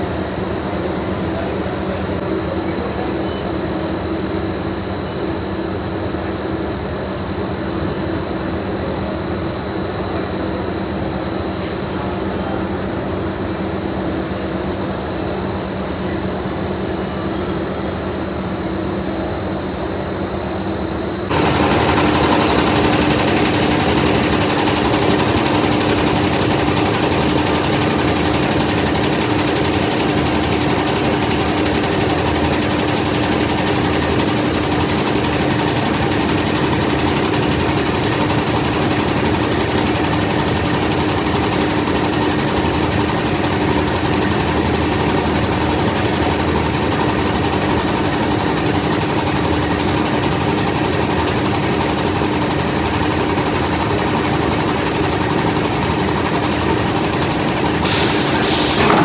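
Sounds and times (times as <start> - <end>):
factory machinery droning: 0.0 - 59.0.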